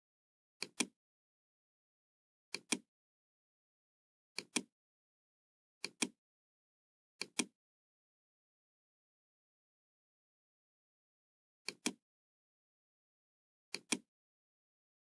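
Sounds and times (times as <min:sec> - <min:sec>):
computer mouse double-clicking: 0:02.5 - 0:02.9, 0:04.4 - 0:04.7, 0:05.8 - 0:06.2, 0:07.2 - 0:07.5, 0:11.7 - 0:12.0, 0:13.7 - 0:14.1.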